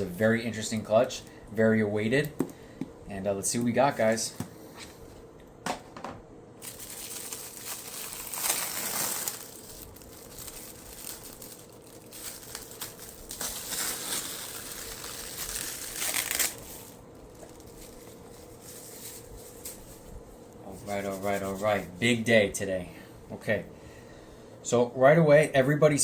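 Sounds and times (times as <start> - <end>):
faint steady hum: 0.0 - 26.0
crinkling rustling handling noise: 6.6 - 22.2.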